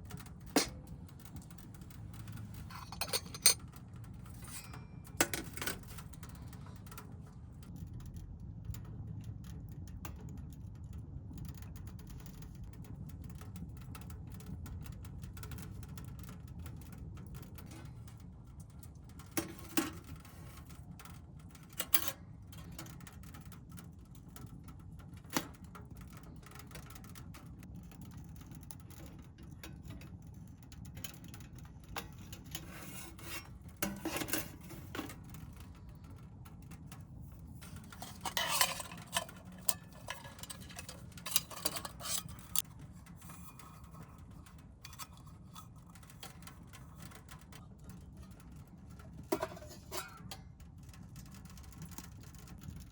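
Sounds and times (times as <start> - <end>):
low background hum: 0.0 - 52.9
metal utensils clinking on cookware: 2.2 - 6.5, 32.0 - 35.4, 37.6 - 47.4, 49.2 - 50.4.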